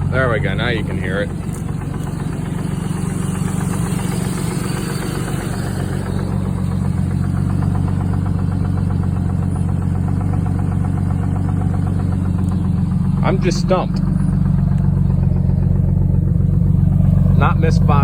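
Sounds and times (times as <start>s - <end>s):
engine hum: 0.0s - 18.0s
fast steady engine knock: 0.0s - 18.0s.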